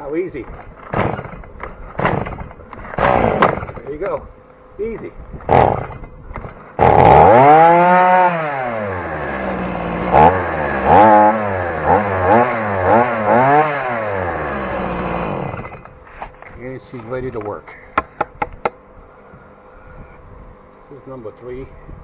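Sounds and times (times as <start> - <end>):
chainsaw engine revving and idling: 0.9 - 1.4, 2.0 - 4.1, 5.5 - 15.9.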